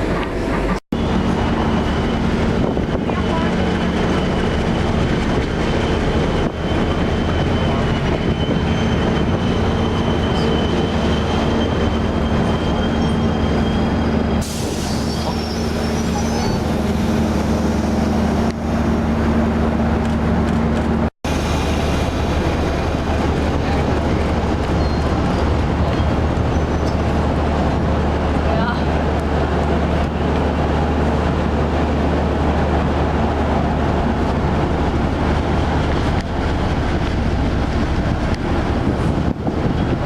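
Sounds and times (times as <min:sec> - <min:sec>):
train rumbling on rails: 0:00.0 - 0:40.0
faint high wheel squeal: 0:06.2 - 0:17.0
hiss: 0:14.4 - 0:16.2.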